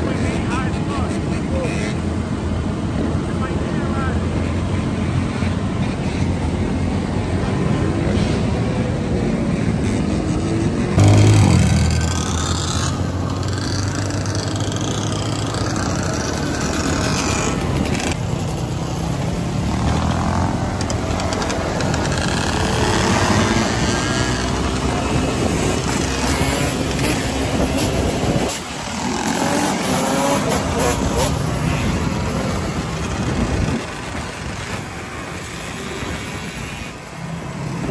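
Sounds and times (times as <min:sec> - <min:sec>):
dirt bike engine: 0:00.0 - 0:37.9
steady rushing noise: 0:14.0 - 0:37.9.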